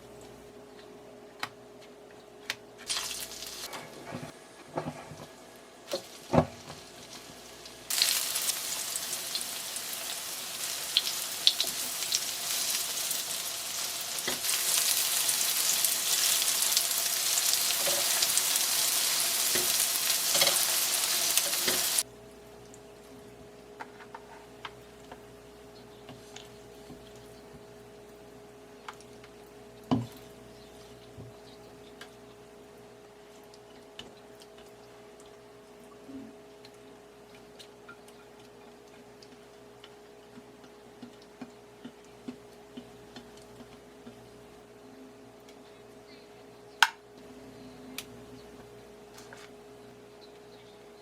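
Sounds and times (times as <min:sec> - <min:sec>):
food sizzling in frying oil: 0:02.8 - 0:03.7, 0:05.9 - 0:22.1.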